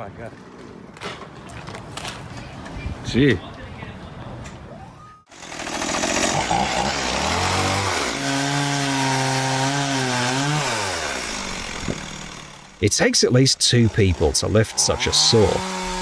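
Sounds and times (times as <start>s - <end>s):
chainsaw engine at high throttle: 5.3s - 12.8s, 13.7s - 16.0s.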